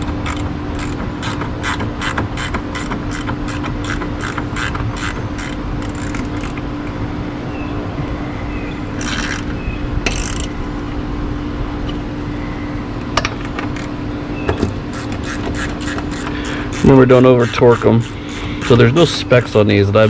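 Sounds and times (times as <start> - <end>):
socket ratchet clicking: 0.0 - 6.6, 9.0 - 10.6
low hum: 0.0 - 19.6.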